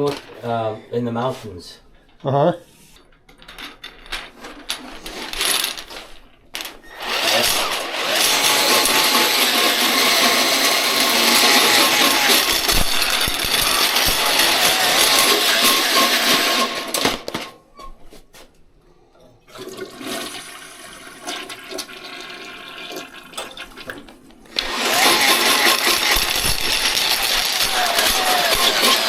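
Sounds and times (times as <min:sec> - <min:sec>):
toilet flushing: 0:19.5 - 0:26.2.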